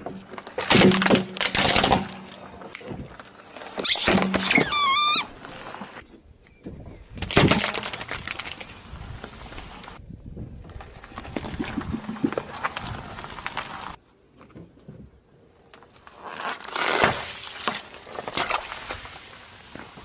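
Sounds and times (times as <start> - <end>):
car tyre crushing objects: 0.0 - 2.7, 7.2 - 9.4.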